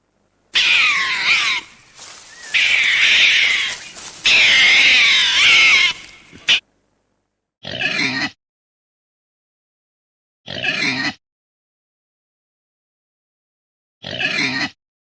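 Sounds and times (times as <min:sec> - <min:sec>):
wavering animal calls: 0:00.6 - 0:06.6.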